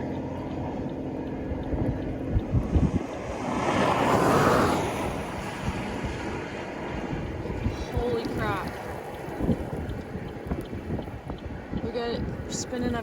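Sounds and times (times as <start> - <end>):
road noise inside vehicle: 0.0 - 13.0
rushing whoosh: 2.3 - 9.9.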